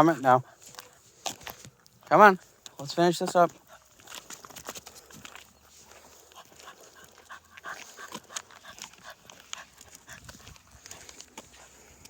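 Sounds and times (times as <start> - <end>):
dog panting: 0.2 - 1.0, 3.2 - 12.0.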